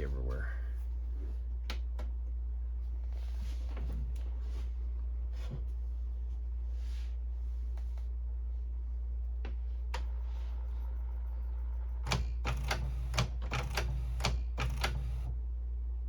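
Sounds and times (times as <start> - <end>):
printer clacking while printing: 12.0 - 15.3
printer clicks: 12.0 - 15.3.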